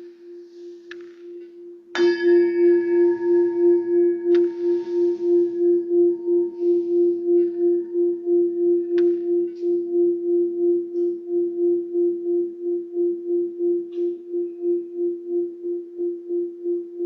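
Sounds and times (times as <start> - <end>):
singing bowl ringing: 0.0 - 17.0.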